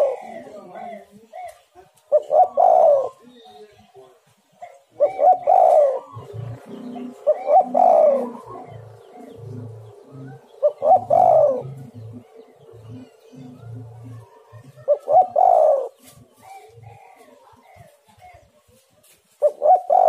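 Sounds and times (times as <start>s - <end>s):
dove cooing: 0.0s - 3.7s, 4.6s - 18.5s, 19.4s - 20.0s
deep rhythmic hooting: 5.0s - 16.0s.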